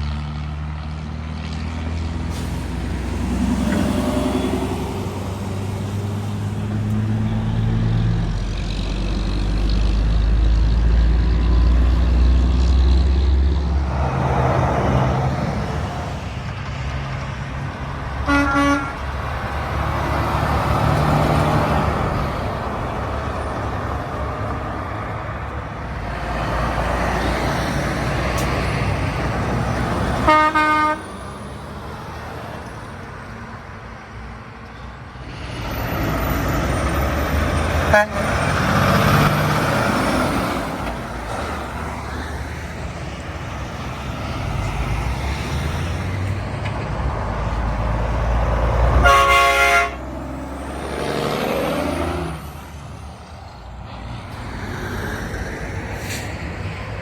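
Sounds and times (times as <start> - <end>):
road traffic passing: 0.0 - 57.0
vehicle horn toot: 18.2 - 19.0, 30.2 - 31.0, 37.9 - 38.3, 49.0 - 50.0.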